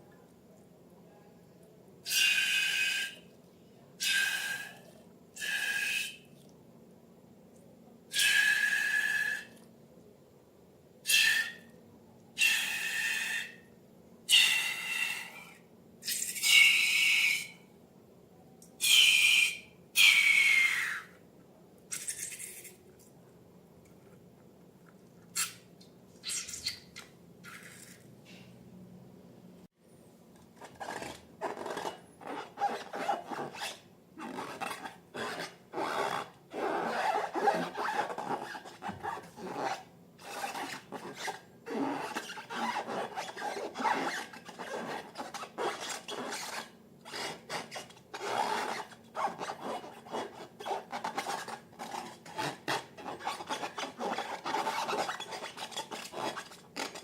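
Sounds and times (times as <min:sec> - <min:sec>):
slime squeezed by hand: 0:21.9 - 0:22.8, 0:26.2 - 0:28.0.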